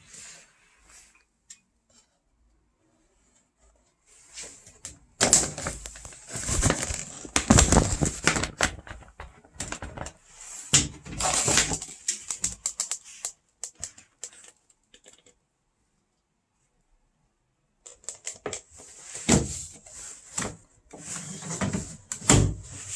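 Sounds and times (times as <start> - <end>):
things clicking and rustling: 10.8 - 15.4.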